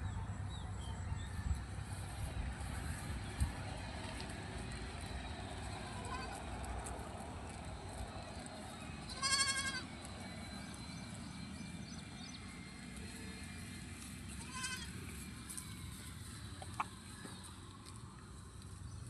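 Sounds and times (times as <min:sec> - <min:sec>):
animal bleating: 0:05.8 - 0:06.4, 0:09.1 - 0:09.9, 0:14.3 - 0:15.0.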